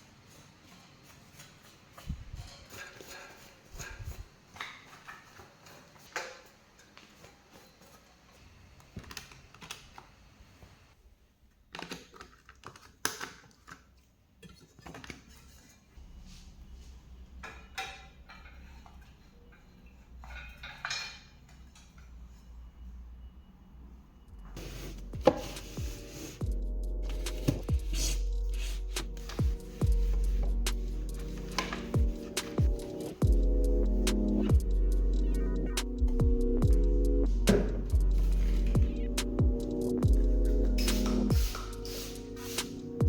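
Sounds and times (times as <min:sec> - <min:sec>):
low hum: 0:24.2 - 0:43.0.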